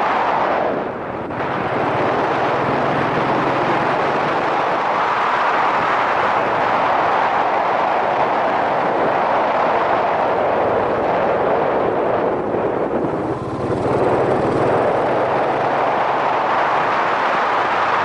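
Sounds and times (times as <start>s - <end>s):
wind rush: 0.0s - 18.0s
motorcycle engine running: 12.5s - 16.5s.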